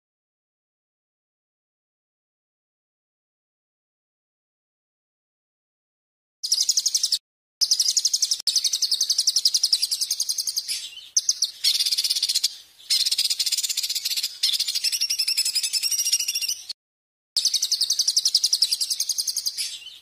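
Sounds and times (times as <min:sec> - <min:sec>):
songbird trilling: 0:06.4 - 0:16.8, 0:17.4 - 0:20.0.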